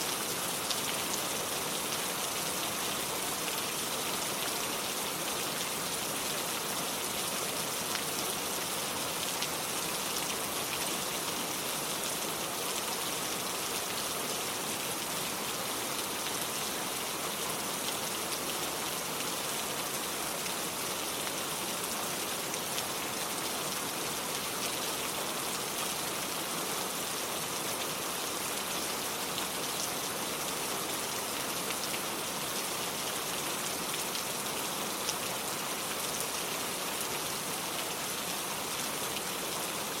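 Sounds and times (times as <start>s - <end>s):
rain on cobblestones: 0.0s - 40.0s.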